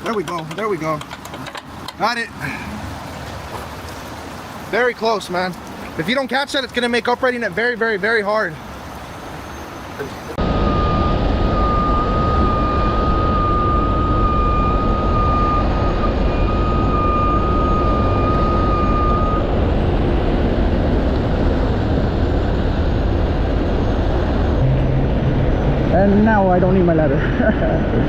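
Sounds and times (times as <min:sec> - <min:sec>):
high whine: 0:09.5 - 0:28.0
diesel engine running under load: 0:10.4 - 0:27.8.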